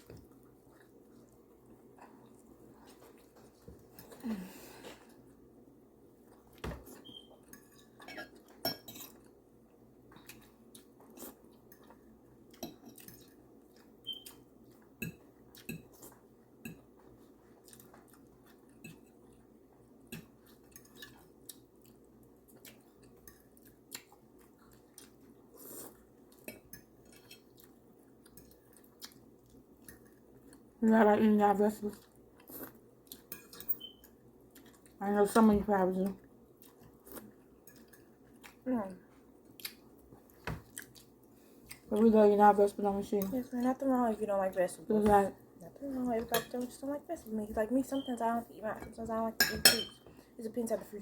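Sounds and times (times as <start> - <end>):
quiet chewing: 0.0 - 5.5, 6.2 - 30.8, 31.8 - 35.0, 36.0 - 42.0
cutlery clinking on plates: 49.4 - 50.1.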